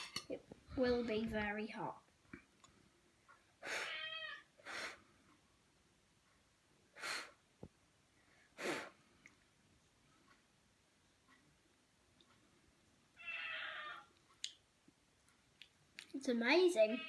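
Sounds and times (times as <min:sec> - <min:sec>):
cat meowing: 0:03.8 - 0:04.5, 0:13.2 - 0:14.1
short breathy puffs: 0:04.6 - 0:05.2, 0:06.9 - 0:07.4, 0:08.3 - 0:09.2.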